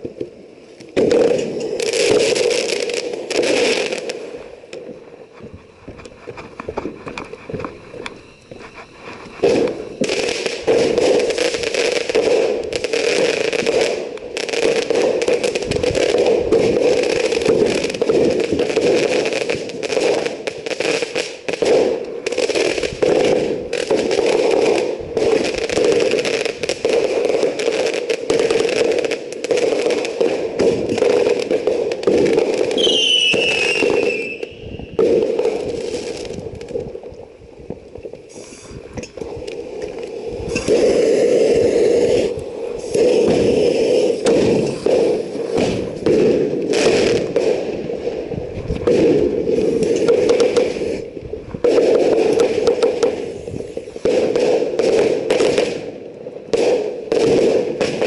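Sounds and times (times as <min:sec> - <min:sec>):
fireworks crackling: 0:00.0 - 0:58.0
descending firework whistle: 0:00.9 - 0:18.1, 0:32.6 - 0:36.4.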